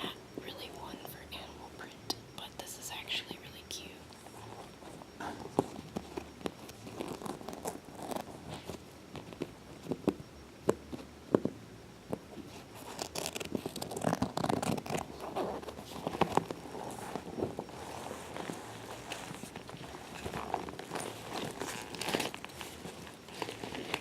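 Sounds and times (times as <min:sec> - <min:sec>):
scratching and rustling: 0:04.2 - 0:10.2, 0:12.3 - 0:24.0.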